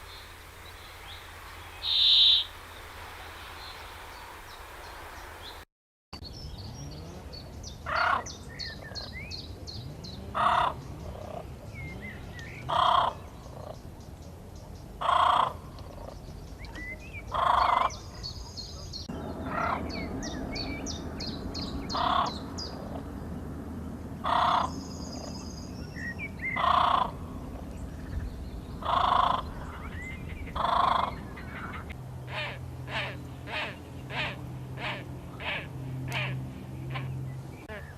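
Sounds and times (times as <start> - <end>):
loud bird call: 0.0 - 4.2, 16.7 - 23.0, 24.2 - 27.2, 28.8 - 37.9
small birds chirping: 0.0 - 5.6, 6.2 - 37.9.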